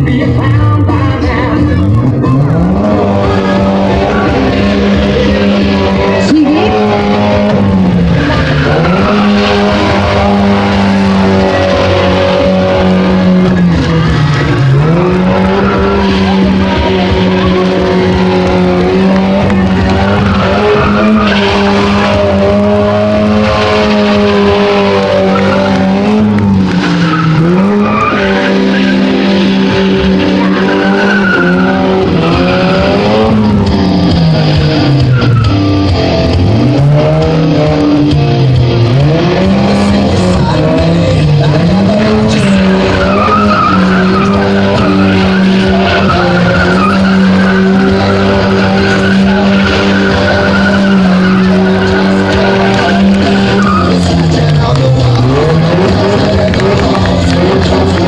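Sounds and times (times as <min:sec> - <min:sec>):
car engine at high revs: 0:00.0 - 0:58.0
tyres skidding: 0:00.0 - 0:58.0.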